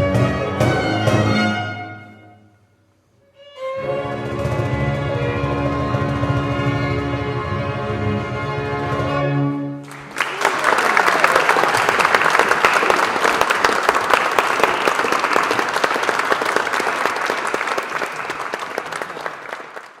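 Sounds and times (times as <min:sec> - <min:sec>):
music: 0:00.0 - 0:10.0
audience clapping: 0:09.8 - 0:20.0.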